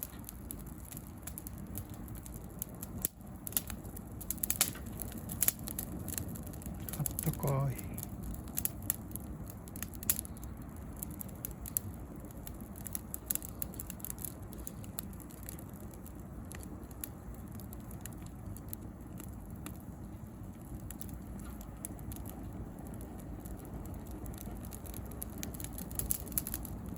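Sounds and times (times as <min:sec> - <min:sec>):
flames rumbling: 0:00.0 - 0:26.9
branches crackling and snapping: 0:03.5 - 0:07.4.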